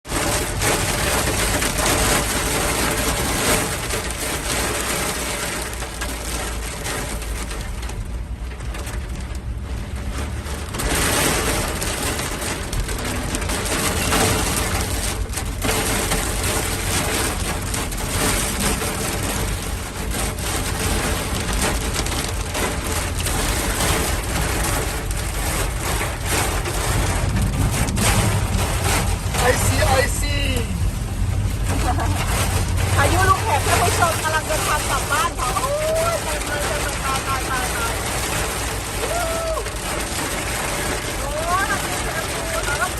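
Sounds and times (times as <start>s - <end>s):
car rumbling on road: 0.0s - 42.9s
hail and rain drumming on car: 0.0s - 42.9s.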